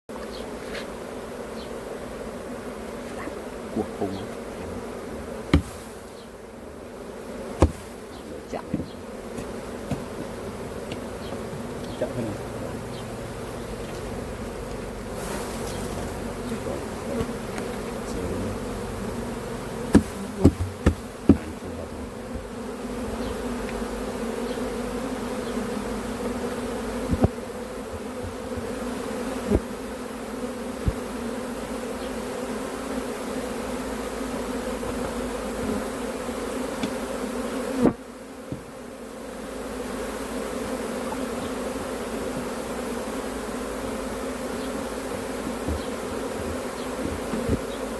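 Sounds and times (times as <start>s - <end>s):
bees buzzing in a hive: 0.1s - 47.9s
sharp knocks: 5.5s - 5.8s, 7.6s - 7.9s, 19.9s - 21.6s, 45.1s - 47.8s.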